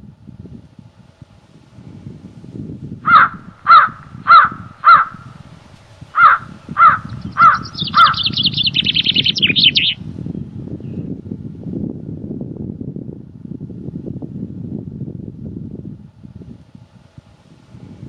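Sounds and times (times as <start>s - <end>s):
low wind noise: 0.0s - 18.0s
bird calling loudly: 3.1s - 5.4s, 6.2s - 10.0s.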